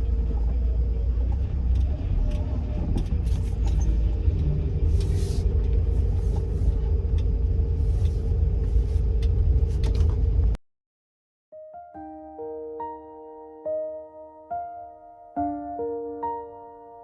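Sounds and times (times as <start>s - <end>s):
car engine rumbling: 0.0s - 10.6s.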